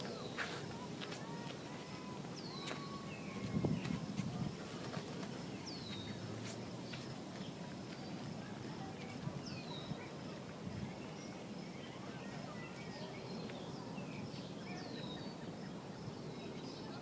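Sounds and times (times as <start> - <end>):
birds chirping: 0.0 - 17.0
low background noise: 0.0 - 17.0
downward-sweeping bird call: 1.2 - 4.0.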